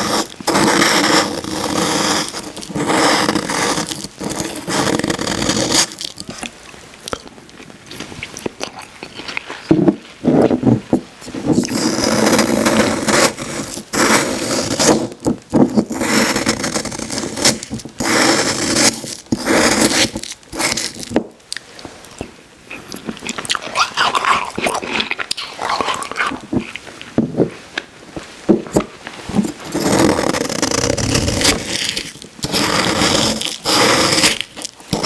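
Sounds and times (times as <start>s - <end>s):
crunching and chewing slush: 0.2s - 10.6s, 19.8s - 27.9s.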